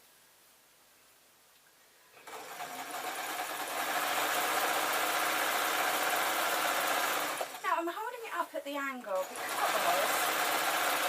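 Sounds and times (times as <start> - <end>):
sewing machine stitching: 2.2 - 7.8, 9.1 - 11.0.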